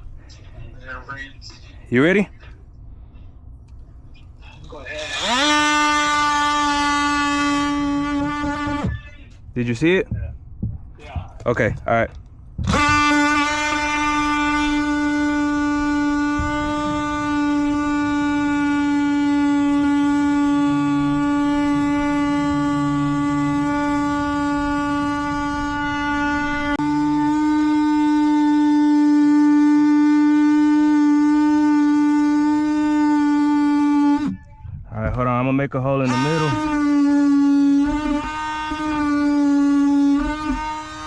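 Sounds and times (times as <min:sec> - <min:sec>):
power saw high-pitched buzz: 0:04.9 - 0:09.0, 0:12.6 - 0:34.4, 0:36.0 - 0:41.0.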